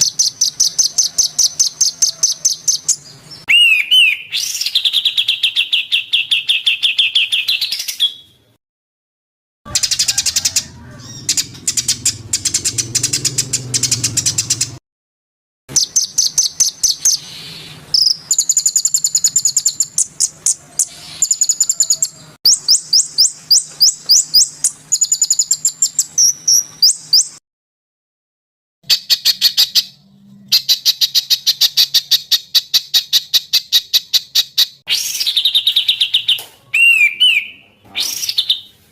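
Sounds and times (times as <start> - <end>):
songbird chirps and whistles: 0.0 - 8.4, 15.7 - 27.4, 28.8 - 38.8.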